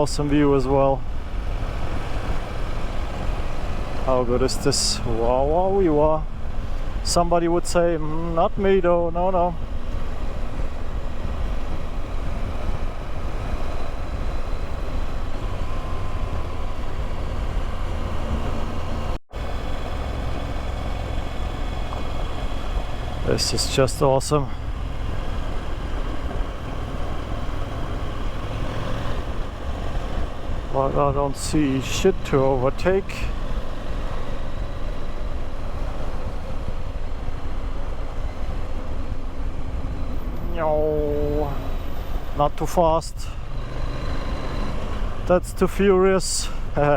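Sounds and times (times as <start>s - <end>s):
riding wind rush: 0.0s - 46.9s
motorcycle engine at speed: 1.0s - 7.0s, 9.5s - 40.5s
wind noise: 9.6s - 23.4s.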